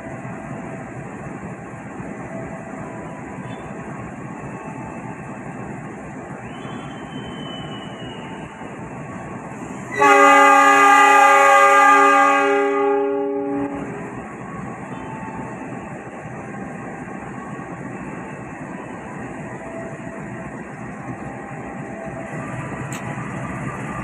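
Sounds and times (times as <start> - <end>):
train rumbling: 0.0 - 24.0
train horn blast: 9.9 - 14.1.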